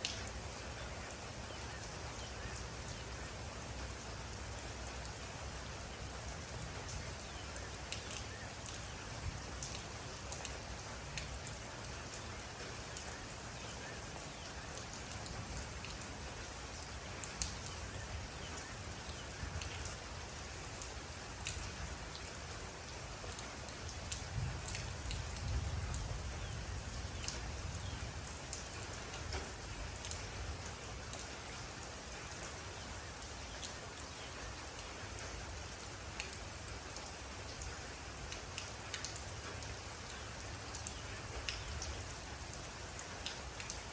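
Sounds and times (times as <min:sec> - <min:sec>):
rain falling: 0:00.0 - 0:43.9
raindrops ticking on a surface: 0:00.0 - 0:43.9.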